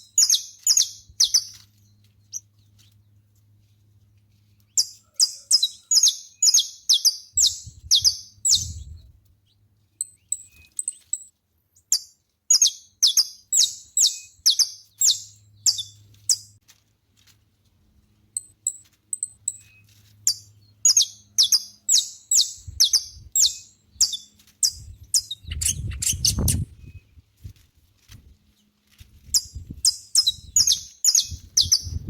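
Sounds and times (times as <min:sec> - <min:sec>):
finch singing: 0:00.0 - 0:03.0, 0:04.7 - 0:09.1, 0:10.0 - 0:16.6, 0:18.4 - 0:27.2, 0:29.3 - 0:32.0.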